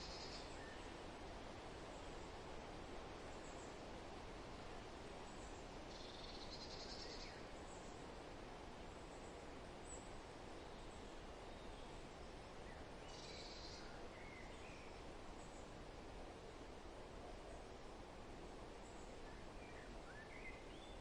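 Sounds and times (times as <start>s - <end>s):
songbirds calling: 0.0s - 1.0s, 5.3s - 8.1s, 9.1s - 15.8s, 18.8s - 21.0s
wind in foliage: 0.0s - 21.0s.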